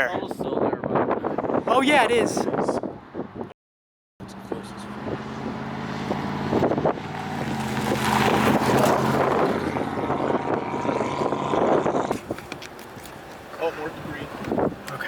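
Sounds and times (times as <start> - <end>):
wind noise on microphone: 0.0 - 3.6, 4.4 - 15.0
vehicle engine running: 4.2 - 12.6.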